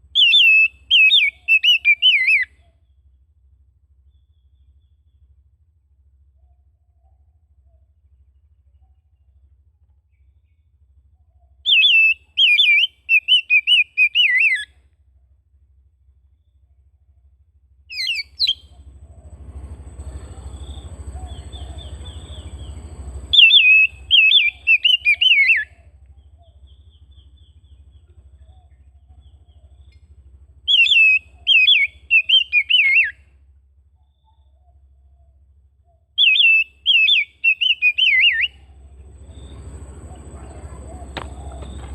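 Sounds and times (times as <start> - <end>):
faint low hum: 0.0 - 41.9
bird singing whistled notes: 0.1 - 3.2, 10.1 - 14.7, 17.9 - 33.2, 34.0 - 41.9.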